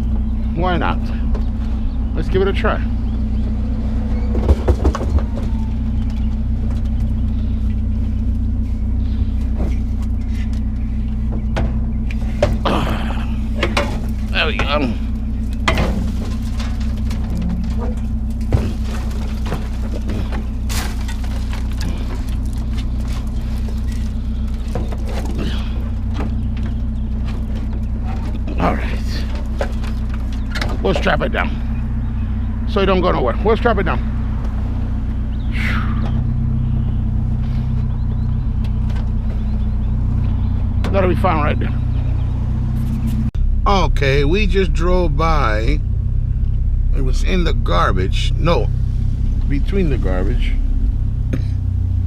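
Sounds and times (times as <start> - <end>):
vehicle engine idling: 0.0 - 52.0
light knocks and rattles: 13.5 - 31.7.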